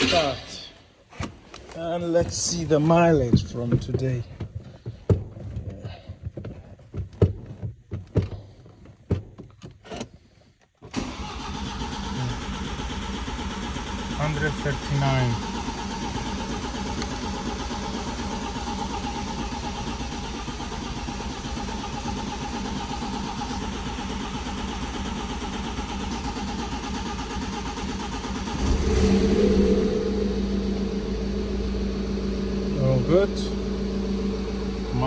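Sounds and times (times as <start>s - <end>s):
diesel engine running: 11.0s - 35.0s
steady hum: 28.4s - 35.0s.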